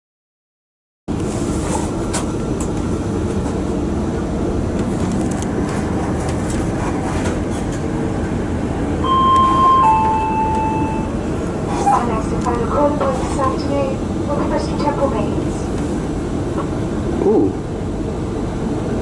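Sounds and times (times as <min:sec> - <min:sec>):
diesel train rumbling: 0:01.1 - 0:19.0.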